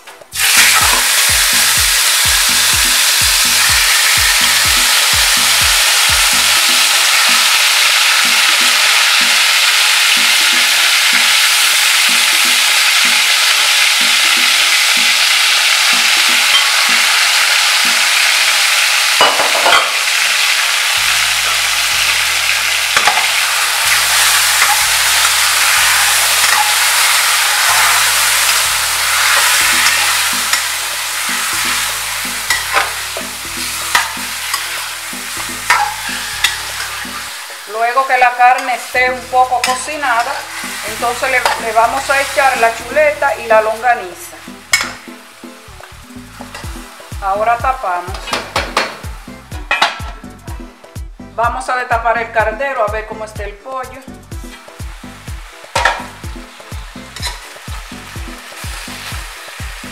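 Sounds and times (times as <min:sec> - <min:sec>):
chicken sizzling in hot oil: 0:00.3 - 0:50.2, 0:54.3 - 0:59.9
metal spoon scraping a pot: 0:22.6 - 0:37.4, 0:57.2 - 0:57.5.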